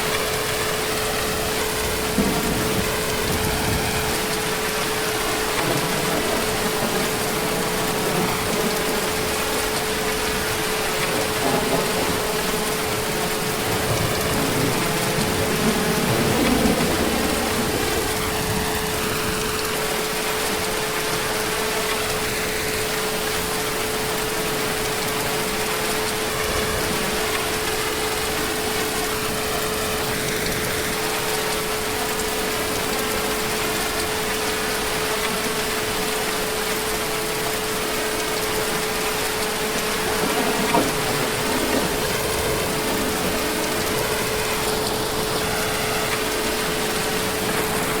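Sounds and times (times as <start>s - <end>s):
heavy rain falling: 0.0s - 48.0s.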